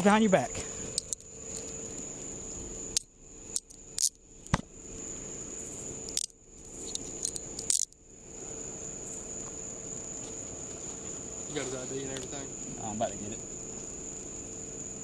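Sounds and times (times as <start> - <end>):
handcuffs clicking and jingling: 1.0 - 1.7, 7.2 - 7.9.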